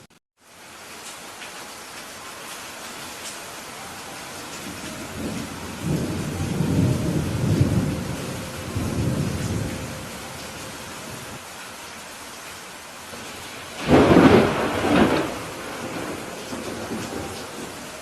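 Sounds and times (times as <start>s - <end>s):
rain hiss: 0.4s - 18.0s
thunder rolling: 4.6s - 11.4s, 13.2s - 18.0s.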